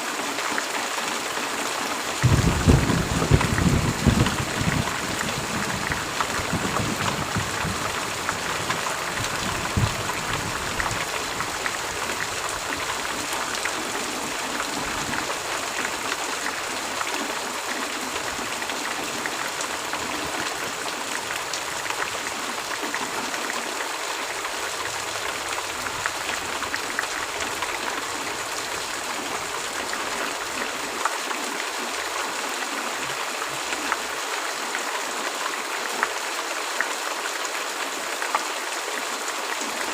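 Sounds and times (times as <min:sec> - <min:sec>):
heavy rain pouring: 0:00.0 - 0:39.9
low thunder rumble: 0:02.2 - 0:12.0.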